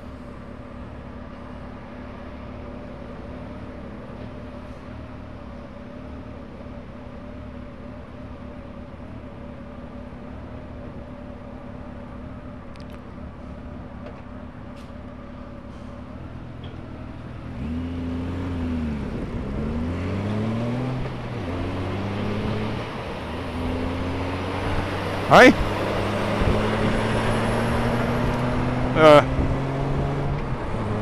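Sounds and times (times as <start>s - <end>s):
motorcycle engine accelerating: 17.2s - 31.0s.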